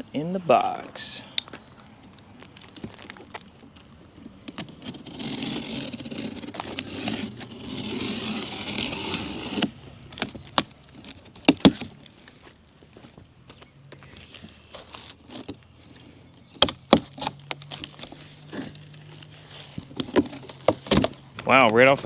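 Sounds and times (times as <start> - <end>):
packing rustling and scraping: 0.8 - 22.0
cardboard box being opened: 4.3 - 21.5.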